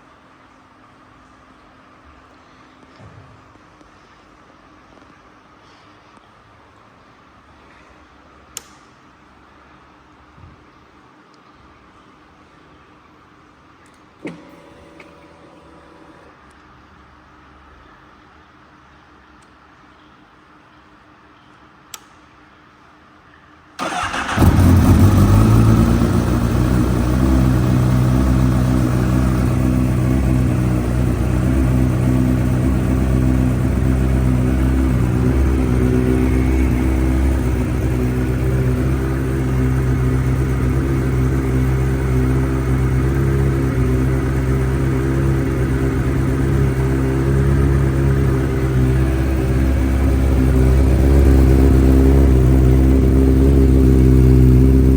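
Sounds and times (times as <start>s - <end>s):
motorcycle engine starting and idling: 14.2s - 16.4s, 23.8s - 54.9s.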